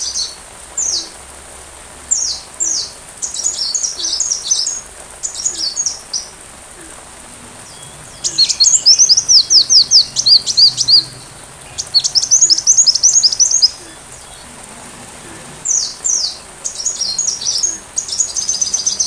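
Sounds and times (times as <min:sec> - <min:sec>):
bird chirping song: 0:06.8 - 0:14.6.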